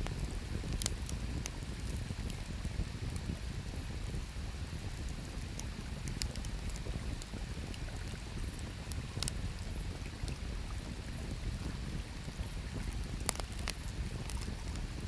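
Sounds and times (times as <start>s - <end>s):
campfire crackling and popping: 0.0s - 3.4s, 5.0s - 10.5s, 12.2s - 15.0s.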